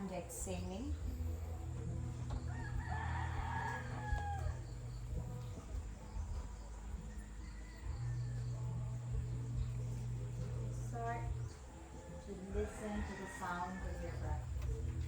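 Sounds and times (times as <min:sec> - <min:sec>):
low steady hum: 0:00.0 - 0:15.0
rooster crowing: 0:02.2 - 0:10.7, 0:12.0 - 0:15.0.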